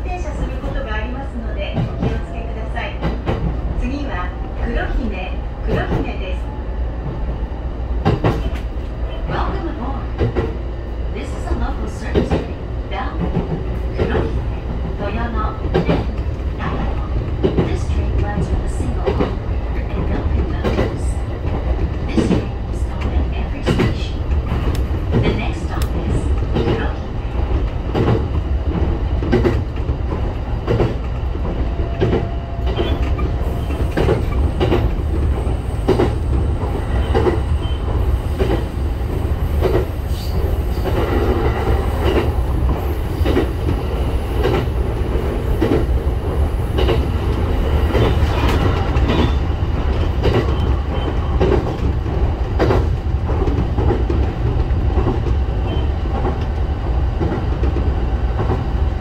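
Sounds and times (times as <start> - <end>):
train low rumble: 0.0 - 59.0.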